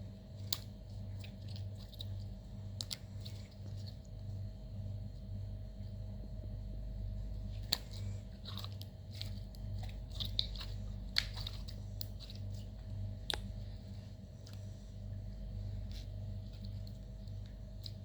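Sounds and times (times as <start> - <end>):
steady low hum: 0.0 - 18.0
slime squished by hand: 7.4 - 14.7.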